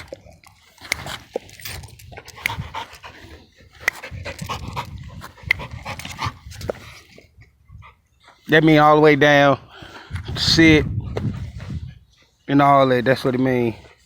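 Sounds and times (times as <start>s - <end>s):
dog panting: 2.2s - 8.5s.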